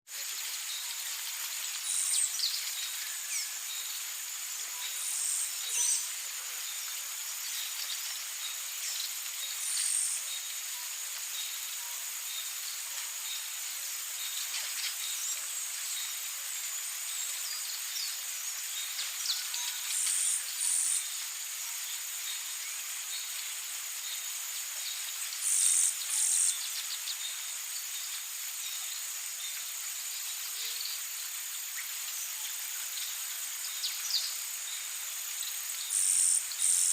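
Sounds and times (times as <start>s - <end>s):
high-pitched insect drone: 0.2s - 36.9s.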